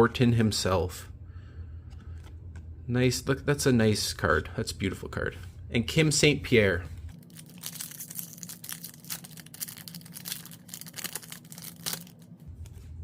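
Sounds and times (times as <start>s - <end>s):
foil wrapper tearing and crinkling: 7.1s - 12.6s.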